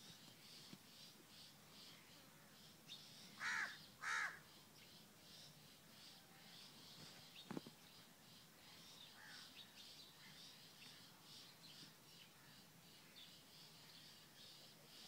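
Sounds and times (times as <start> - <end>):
bird calling: 3.3 - 4.5.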